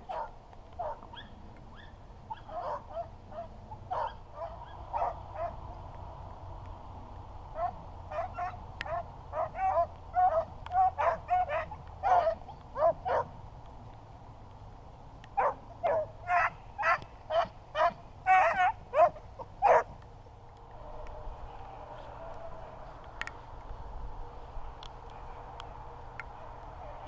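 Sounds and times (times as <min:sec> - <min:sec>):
dogs baying: 0:00.0 - 0:05.8, 0:07.6 - 0:13.4, 0:15.4 - 0:20.0.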